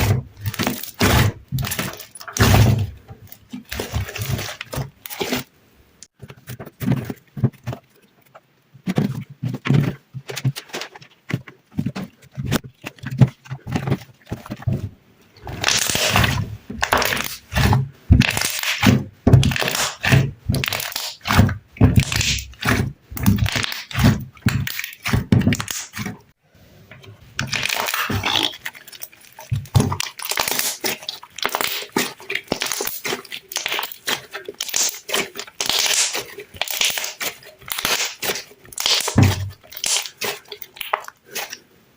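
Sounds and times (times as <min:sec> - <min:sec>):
sticky slime popping and squelching: 0:00.0 - 0:05.5, 0:15.4 - 0:26.2, 0:27.4 - 0:41.6.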